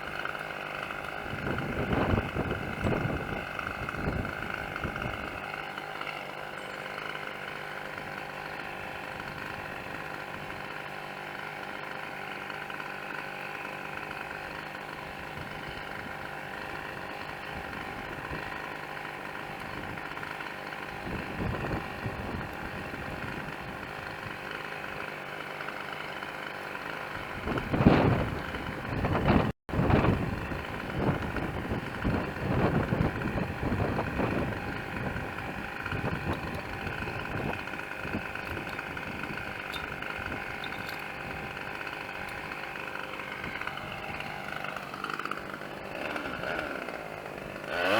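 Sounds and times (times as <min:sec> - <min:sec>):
engine running steadily: 0:00.0 - 0:47.9
wind buffeting microphone: 0:01.2 - 0:05.4, 0:27.3 - 0:42.5.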